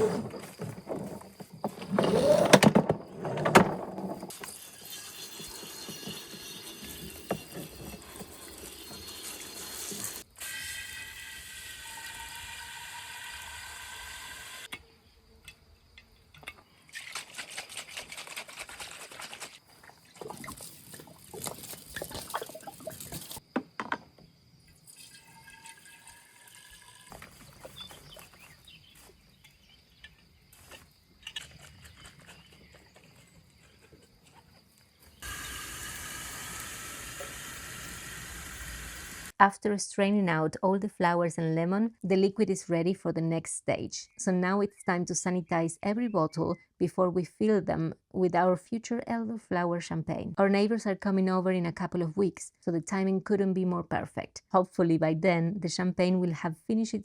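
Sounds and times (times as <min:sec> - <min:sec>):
liquid pouring and splashing: 0:16.9 - 0:23.4, 0:24.8 - 0:27.7.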